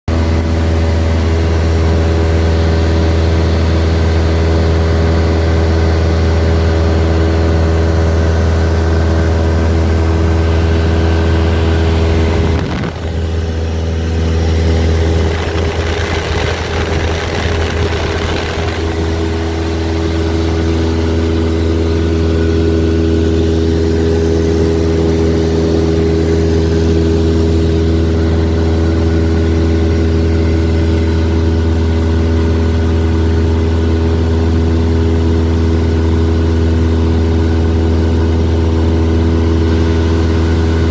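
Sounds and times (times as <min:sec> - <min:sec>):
light aircraft engine droning: 0:00.1 - 0:40.9
rushing noise: 0:14.7 - 0:20.6.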